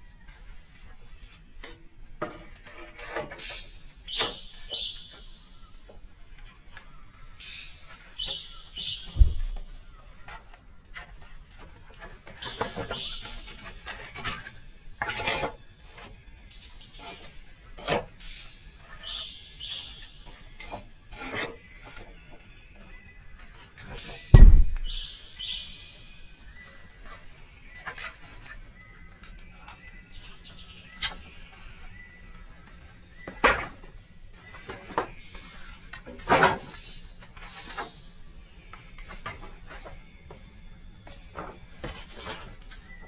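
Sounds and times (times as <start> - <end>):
bird calls: 0.0 - 43.0
heavy thump: 9.1 - 9.7, 24.3 - 25.0.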